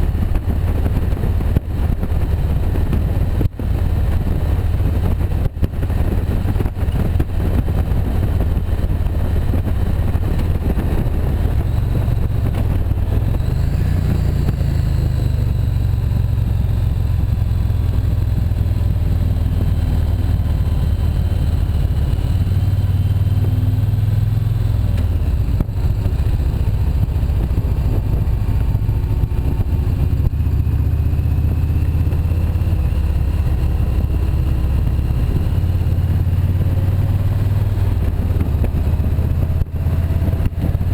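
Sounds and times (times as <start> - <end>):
motorcycle engine at speed: 0.0 - 40.9
wind rush on microphone: 0.0 - 40.9.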